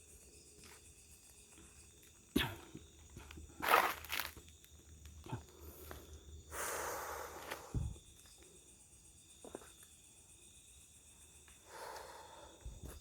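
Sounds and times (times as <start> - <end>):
insects chirring: 0.0 - 13.0
footsteps crunching dry leaves: 3.6 - 4.4.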